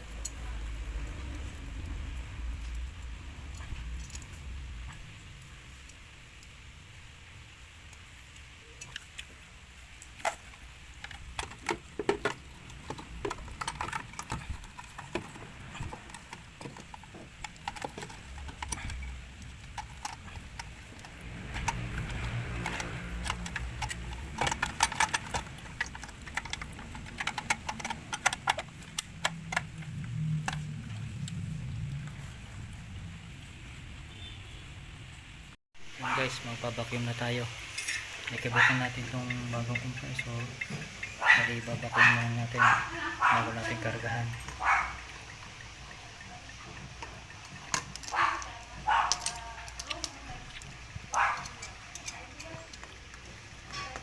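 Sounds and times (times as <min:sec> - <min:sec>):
low rumble: 0:00.0 - 0:07.2
metal tools clinking and tapping: 0:10.0 - 0:29.9, 0:37.8 - 0:38.4.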